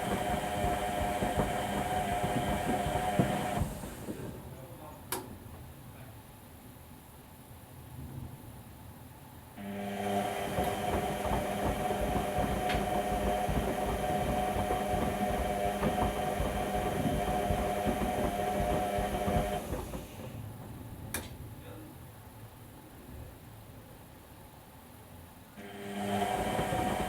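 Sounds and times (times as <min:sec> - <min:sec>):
washing machine motor hum: 0:00.0 - 0:04.7, 0:09.6 - 0:21.1, 0:25.6 - 0:27.0.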